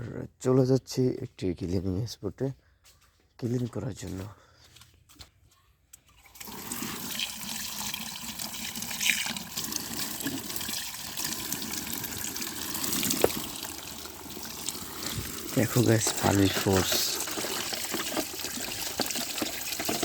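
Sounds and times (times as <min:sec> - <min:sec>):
water running and splashing: 0:06.2 - 0:20.0.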